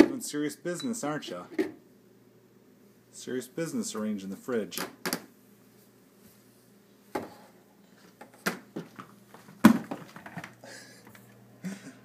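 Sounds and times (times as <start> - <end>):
items knocking and clinking on shelves: 8.2 - 10.6.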